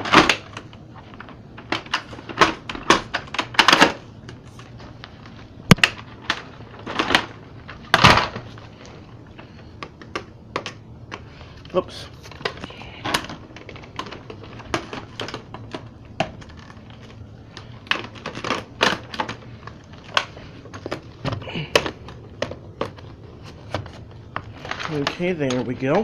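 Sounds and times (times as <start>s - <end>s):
plastic parts clicking and knocking: 0.0s - 26.0s.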